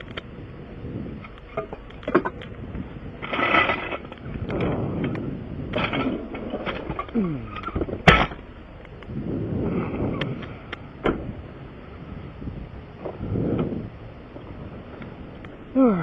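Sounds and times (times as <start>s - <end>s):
clattering handling noises: 3.2s - 9.0s.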